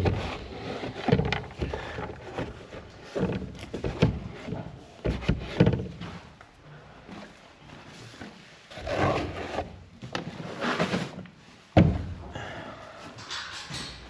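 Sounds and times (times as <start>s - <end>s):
brush scraping feed pans: 0.0s - 6.3s, 7.2s - 11.2s.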